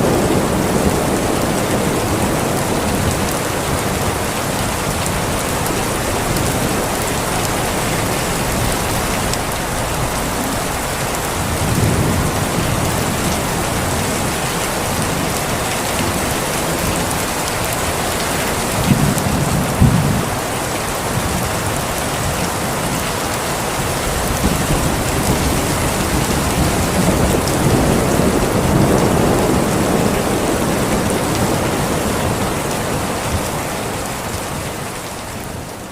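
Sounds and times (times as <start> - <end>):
thunder claps: 0.0 - 20.4, 23.8 - 33.5
thunder rumbling: 0.0 - 34.7
heavy rain falling: 0.0 - 35.9.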